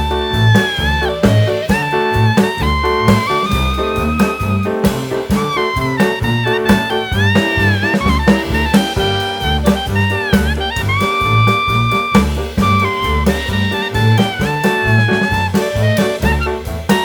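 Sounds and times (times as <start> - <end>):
jazz music with saxophone: 0.0 - 17.0.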